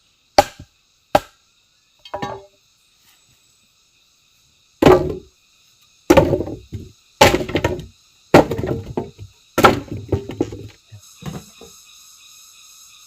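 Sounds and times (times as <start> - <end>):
forest insects droning: 0.0 - 13.0
wood being chopped: 0.4 - 1.4, 4.8 - 5.3, 6.1 - 11.5
wood splintering: 4.8 - 5.2, 6.1 - 10.7.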